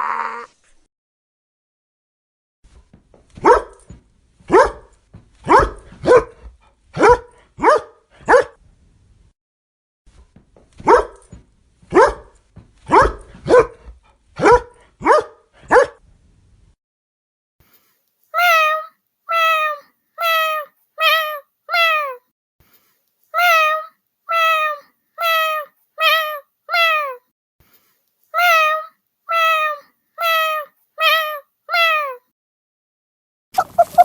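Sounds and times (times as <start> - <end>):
dog barking: 3.4 - 3.9, 4.5 - 8.6, 10.8 - 11.3, 11.9 - 12.3, 12.9 - 16.0, 33.6 - 34.0.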